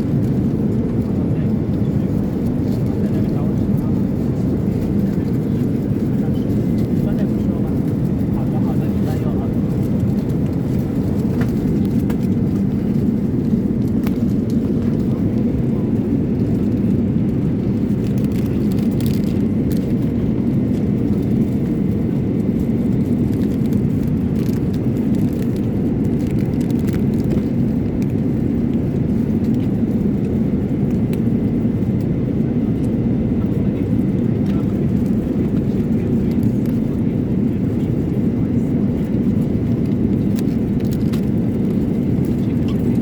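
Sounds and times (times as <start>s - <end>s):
airliner cabin noise: 0.0s - 43.0s.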